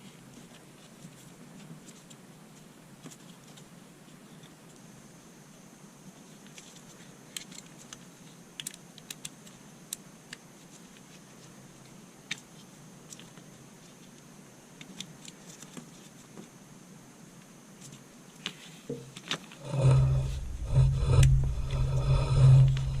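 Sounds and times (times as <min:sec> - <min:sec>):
faint steady hiss: 0:00.0 - 0:23.0
small parts clicking and tapping: 0:06.4 - 0:11.2.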